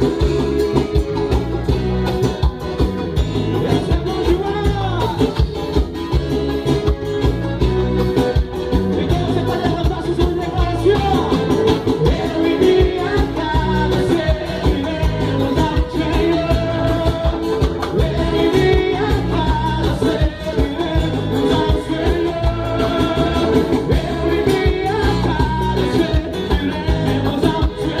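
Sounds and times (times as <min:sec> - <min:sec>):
live latin band: 0:00.0 - 0:28.0
steady bass beat: 0:00.0 - 0:28.0
person singing: 0:08.9 - 0:28.0.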